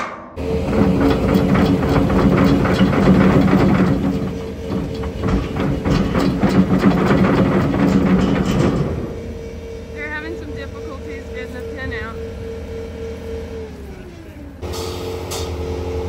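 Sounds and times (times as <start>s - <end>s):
rattling clatter: 0.0s - 12.2s
diesel engine idling: 0.4s - 16.0s.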